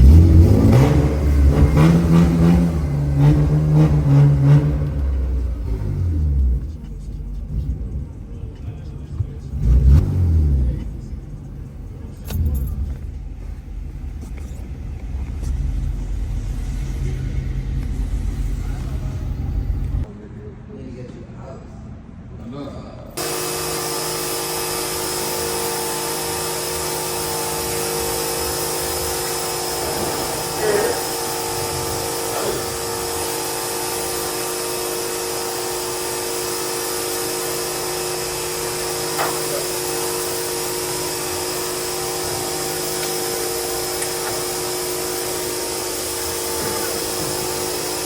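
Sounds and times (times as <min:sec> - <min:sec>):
motor whirring: 0:23.2 - 0:48.0.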